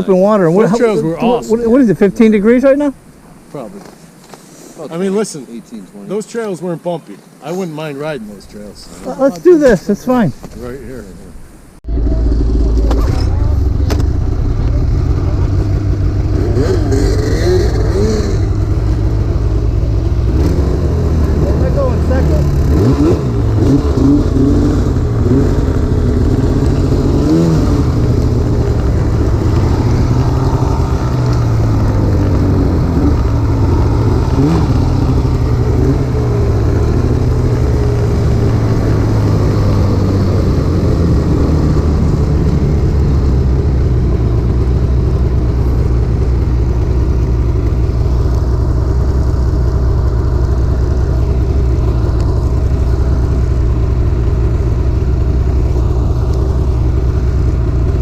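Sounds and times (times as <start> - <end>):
snowmobile engine running: 11.9 - 58.0.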